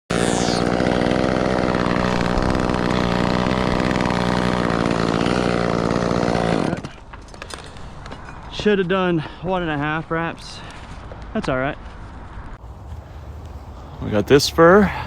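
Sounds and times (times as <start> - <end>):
chainsaw engine running: 0.1 - 7.6.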